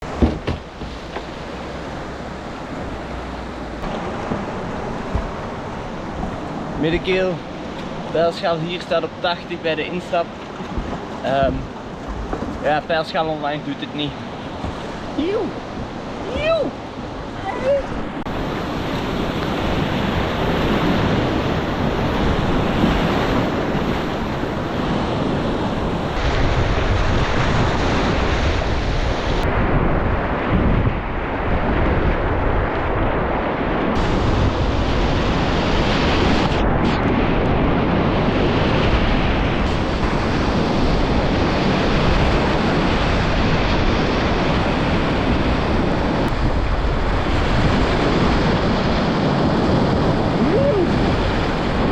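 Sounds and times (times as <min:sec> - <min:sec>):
wind buffeting microphone: 0:00.0 - 0:51.9
whitewater river rushing: 0:12.6 - 0:24.8, 0:48.0 - 0:51.9.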